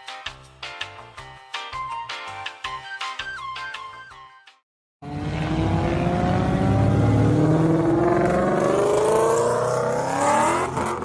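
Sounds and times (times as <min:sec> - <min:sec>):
car engine accelerating: 0:05.0 - 0:11.0.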